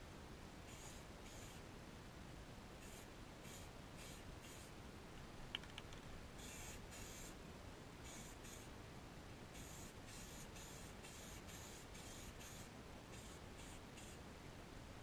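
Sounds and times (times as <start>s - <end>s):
spray-paint can hissing: 0.7s - 1.6s, 2.8s - 4.7s, 6.4s - 7.3s, 8.0s - 8.7s, 9.6s - 14.2s.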